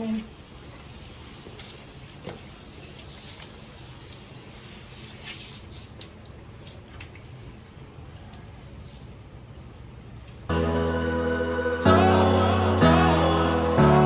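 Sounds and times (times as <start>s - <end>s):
faint drips and splashes: 0.0s - 10.5s.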